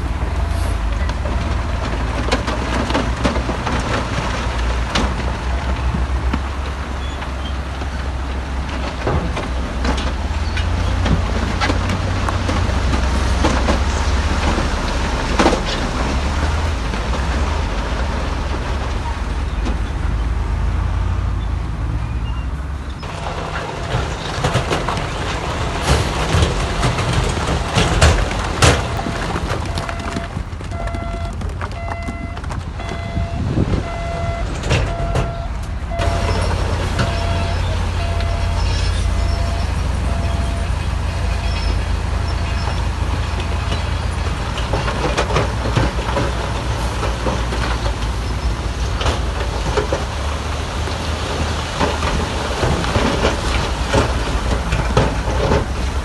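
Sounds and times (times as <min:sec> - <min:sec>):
heavy machinery engine droning: 0:00.0 - 0:56.0
sharp knocks and clanks: 0:23.0 - 0:56.0
reversing alarm beeping: 0:28.8 - 0:41.8.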